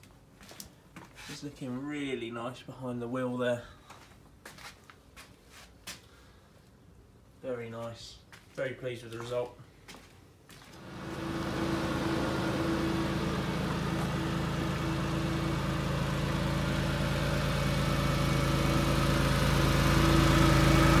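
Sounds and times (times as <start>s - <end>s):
car engine idling: 10.8s - 21.0s.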